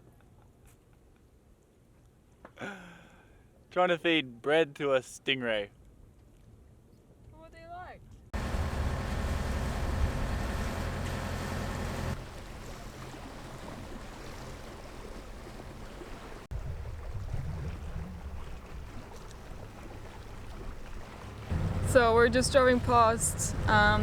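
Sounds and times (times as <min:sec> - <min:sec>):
outboard motor running: 0:08.4 - 0:24.0
water wash: 0:08.4 - 0:24.0
wind noise: 0:16.5 - 0:19.2.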